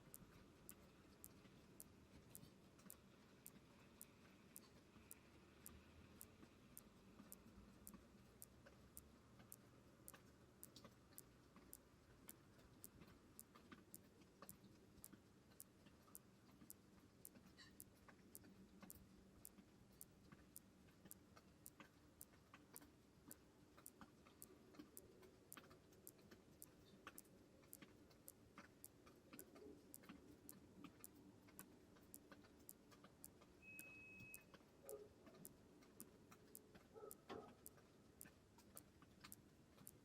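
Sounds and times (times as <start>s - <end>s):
faint ticking: 0.0s - 40.0s
short high beep: 33.6s - 34.5s.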